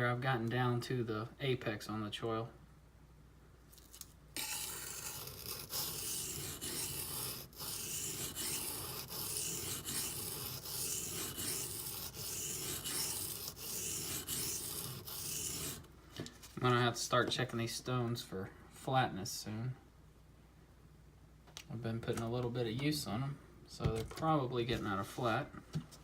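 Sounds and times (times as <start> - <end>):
knife scraping on sharpening stone: 4.4 - 15.8.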